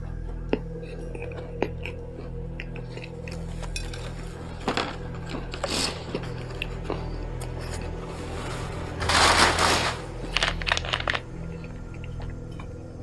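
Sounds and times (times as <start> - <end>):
crinkling rustling burst: 8.0 - 11.3.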